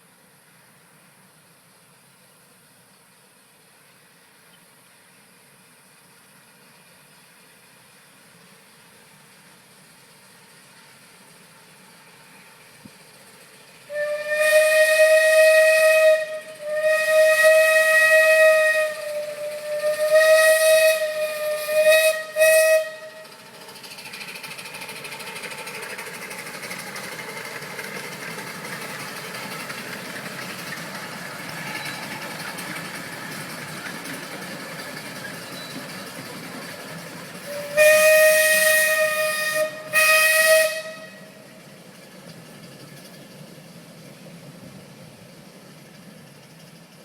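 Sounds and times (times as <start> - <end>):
steam locomotive whistle: 13.9 - 23.4, 37.4 - 41.6.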